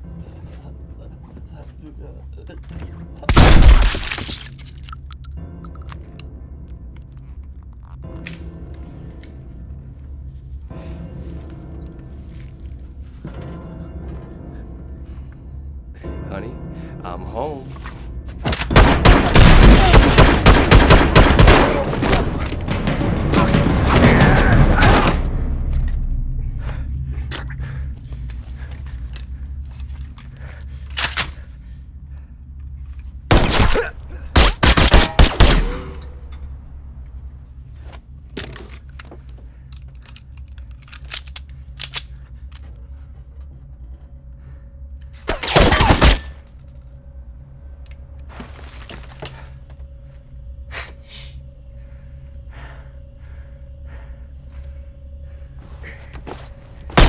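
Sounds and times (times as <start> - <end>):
low film music score: 0.0 - 57.0
rapid gunfire: 18.6 - 25.4.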